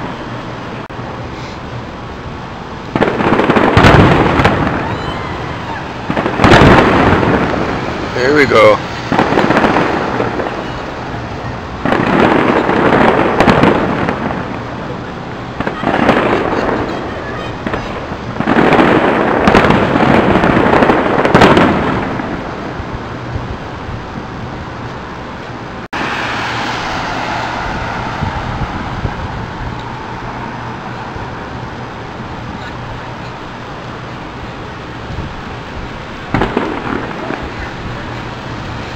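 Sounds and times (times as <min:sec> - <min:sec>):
steady background noise: 0:00.0 - 0:38.9
fireworks exploding in rapid bangs: 0:02.9 - 0:23.4, 0:36.2 - 0:38.9.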